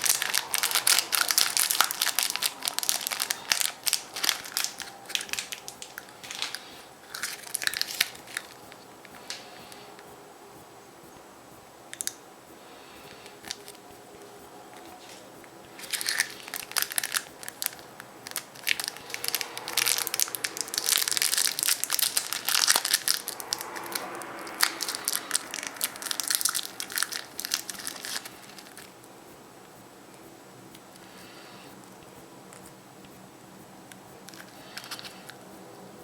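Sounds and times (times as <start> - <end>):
foil wrapper crinkling: 0.0 - 9.8, 15.8 - 28.9.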